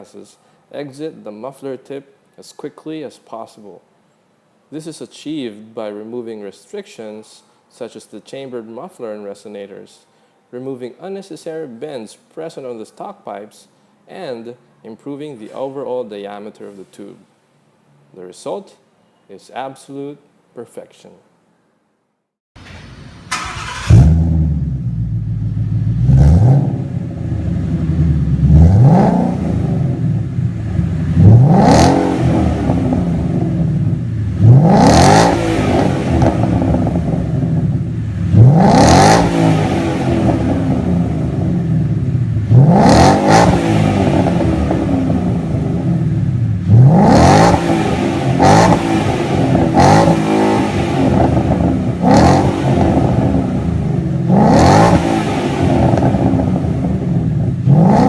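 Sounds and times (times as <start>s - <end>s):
car engine revving: 22.6s - 58.0s.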